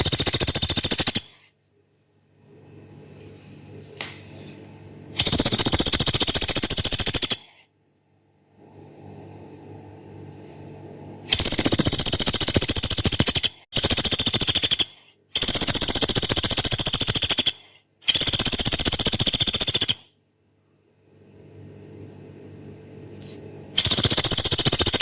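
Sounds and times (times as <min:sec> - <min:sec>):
woodpecker rattling calls: 0:00.0 - 0:01.4, 0:05.2 - 0:07.5, 0:11.4 - 0:20.0.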